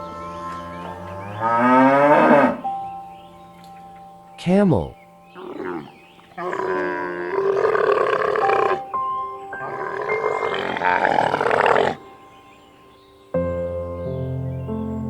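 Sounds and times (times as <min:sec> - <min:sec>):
soft background music: 0:00.0 - 0:15.0
camel groaning bellows: 0:00.4 - 0:02.6, 0:05.4 - 0:08.9, 0:09.6 - 0:12.1.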